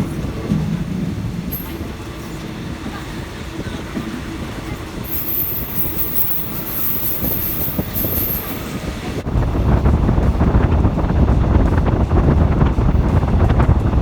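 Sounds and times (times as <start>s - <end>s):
train rumbling on rails: 0.0s - 14.0s
wind buffeting microphone: 0.0s - 14.0s
high wheel squeal: 5.1s - 8.8s.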